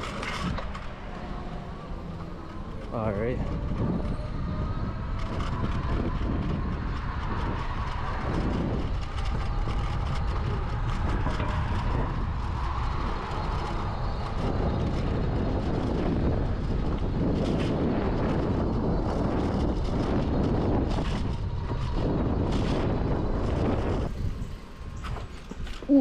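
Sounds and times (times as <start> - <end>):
bike tyre noise on road: 0.0 - 26.0
wind rumble on microphone: 0.0 - 26.0.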